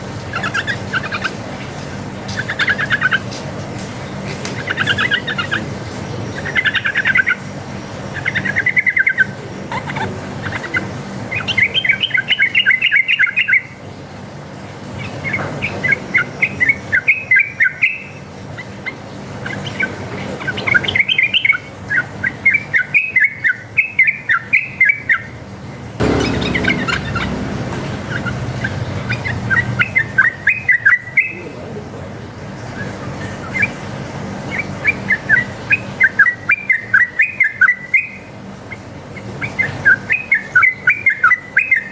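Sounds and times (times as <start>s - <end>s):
bird chattering song: 0.3s - 1.5s, 2.2s - 3.4s, 4.1s - 5.7s
steady low hum: 26.0s - 30.0s.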